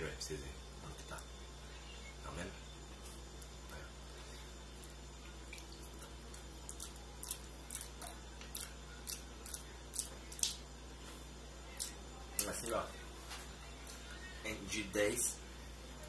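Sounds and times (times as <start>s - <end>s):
wet chewing: 4.8s - 10.6s.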